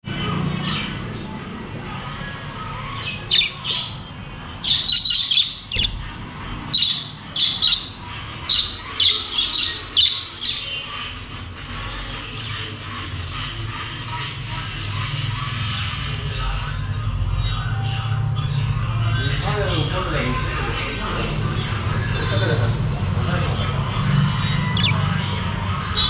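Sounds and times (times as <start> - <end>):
budgerigars squawking: 2.8 - 6.0, 6.7 - 10.8, 24.6 - 25.3.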